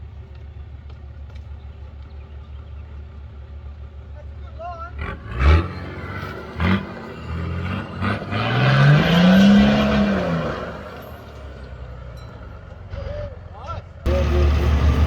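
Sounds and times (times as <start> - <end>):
engine revving: 4.8 - 13.3, 14.0 - 15.0.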